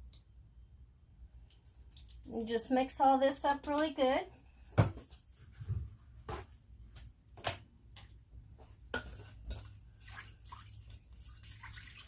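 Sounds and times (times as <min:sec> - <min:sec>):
liquid sloshing: 0:09.1 - 0:12.0.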